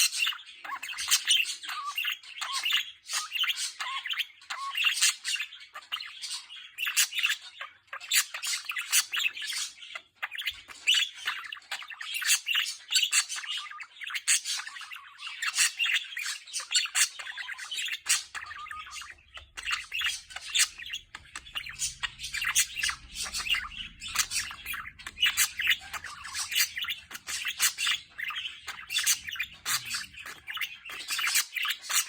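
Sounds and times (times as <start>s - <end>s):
budgerigar warbling: 17.2s - 32.0s.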